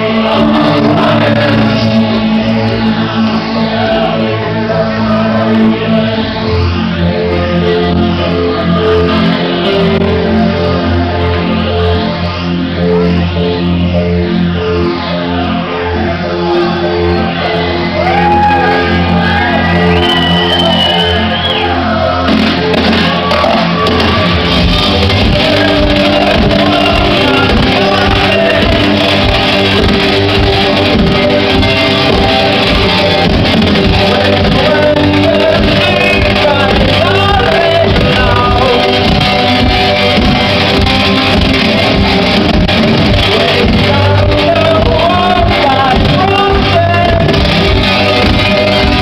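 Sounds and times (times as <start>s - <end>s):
man singing lead vocal: 0.0s - 6.6s, 16.0s - 40.8s, 42.5s - 49.0s
live electronic rock band: 0.0s - 49.0s
crowd shouting: 3.4s - 5.7s, 15.1s - 43.4s.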